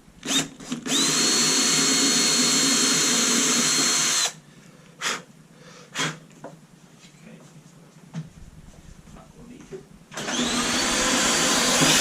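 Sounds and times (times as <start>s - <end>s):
cordless drill whining: 0.2s - 4.4s, 10.1s - 12.0s.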